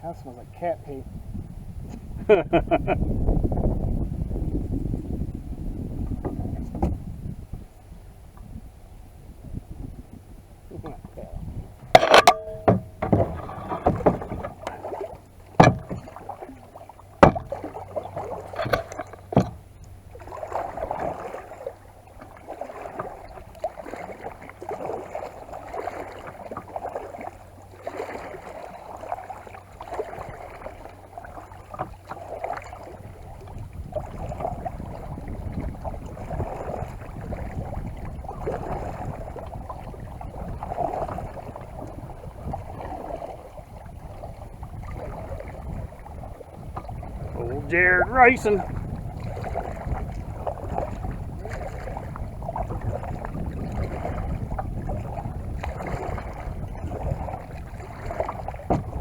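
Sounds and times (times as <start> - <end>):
kayak paddle strokes in water: 1.7 - 59.0
paddle knocking: 10.7 - 27.1, 29.8 - 33.0, 44.9 - 59.0.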